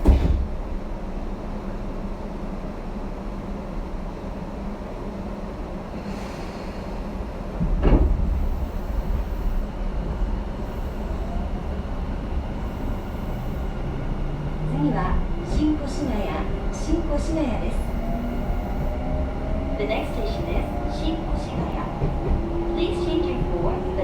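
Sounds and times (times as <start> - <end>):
train doors closing thud: 0.0 - 0.9, 7.6 - 9.2
train cabin low rumble: 0.0 - 24.0.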